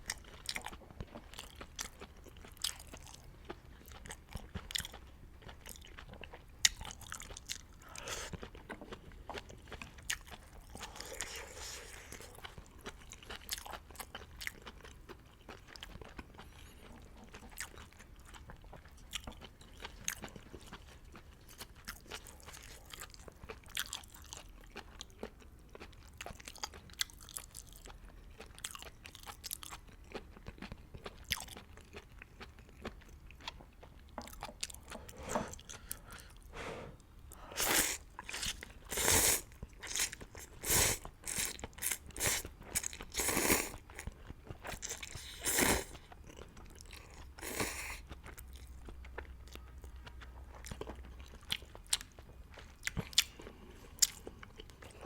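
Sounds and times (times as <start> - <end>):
loud eating sounds: 37.5 - 49.1
chewing with wet mouth clicks: 41.2 - 55.0.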